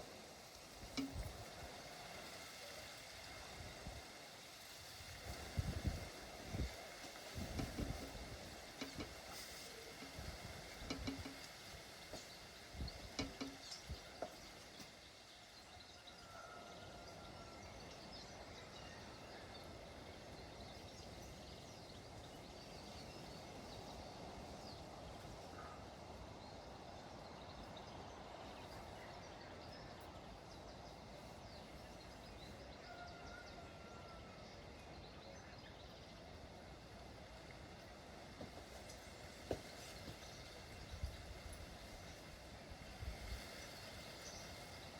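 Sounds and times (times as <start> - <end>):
light rain ticking: 0.0 - 15.6
steady hiss: 0.0 - 15.7.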